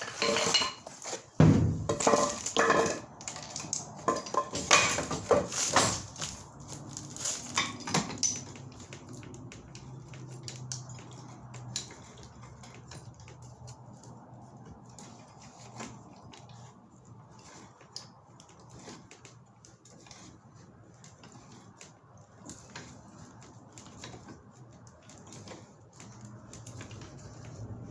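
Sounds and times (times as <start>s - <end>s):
metal pipe fittings clinking: 0.0s - 1.2s.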